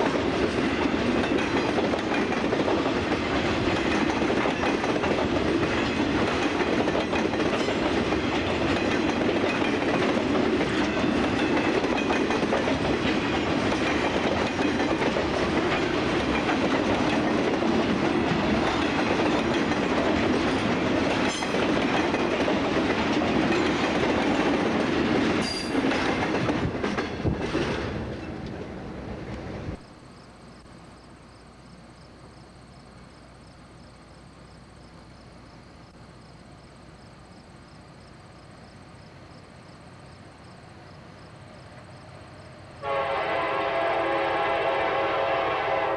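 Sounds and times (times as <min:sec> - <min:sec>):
crickets chirring: 0:00.0 - 0:28.4, 0:29.8 - 0:45.1
freight train wheels clacking: 0:00.0 - 0:29.8.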